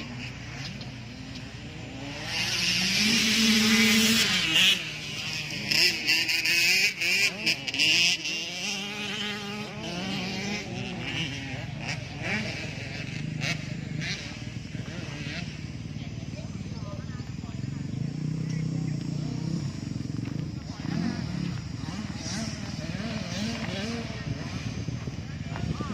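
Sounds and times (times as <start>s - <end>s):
dirt bike engines revving: 0.0s - 25.9s.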